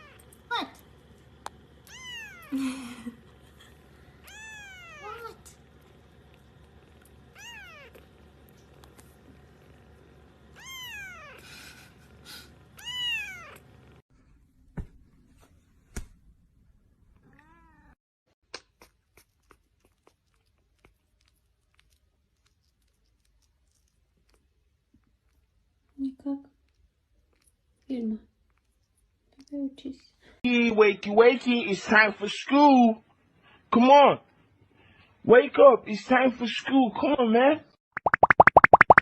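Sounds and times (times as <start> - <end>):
cat meowing: 1.8 - 2.5, 4.2 - 5.2, 7.3 - 8.0, 10.6 - 11.4, 12.8 - 13.6, 17.2 - 18.0.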